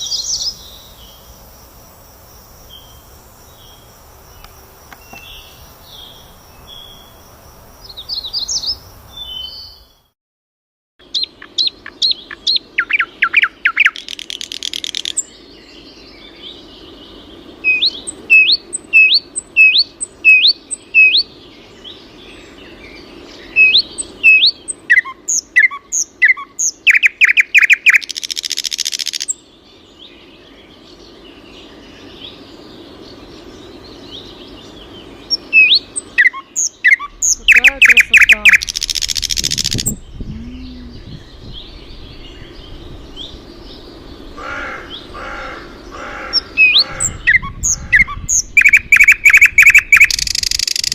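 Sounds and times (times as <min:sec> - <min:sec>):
songbird singing: 0:00.0 - 0:10.1, 0:11.0 - 0:50.9
faint low hum: 0:37.0 - 0:46.6.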